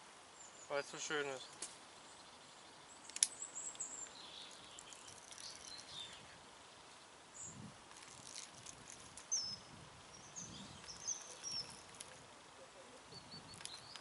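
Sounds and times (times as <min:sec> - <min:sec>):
faint outdoor background: 0:00.0 - 0:14.0
small birds chirping: 0:00.3 - 0:14.0
faint clicks: 0:03.0 - 0:06.0, 0:13.5 - 0:14.0.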